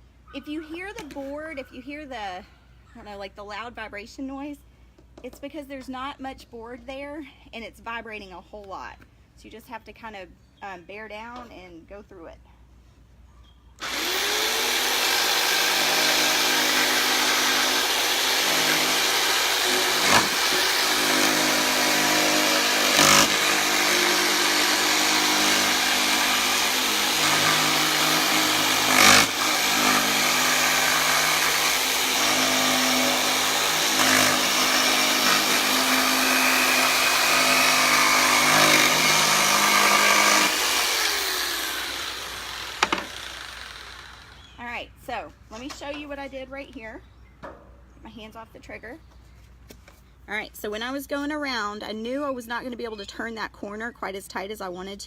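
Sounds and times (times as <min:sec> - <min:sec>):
electric jigsaw cutting wood: 0:13.8 - 0:44.5.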